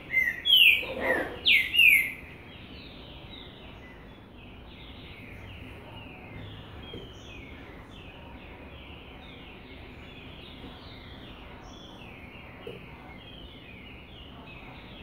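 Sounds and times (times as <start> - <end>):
bird singing whistled notes: 0.0 - 2.2.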